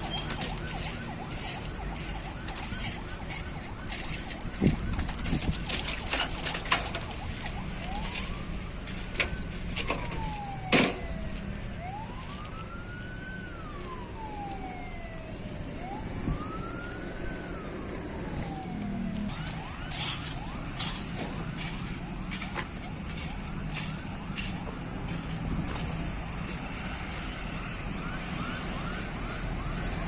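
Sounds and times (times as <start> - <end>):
siren wailing: 0.0 - 30.0.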